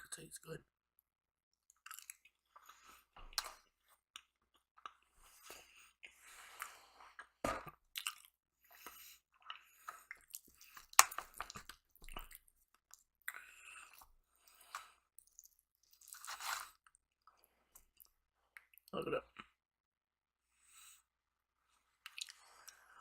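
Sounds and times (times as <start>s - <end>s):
wet chewing mouth sounds: 1.7s - 16.7s, 22.0s - 22.9s.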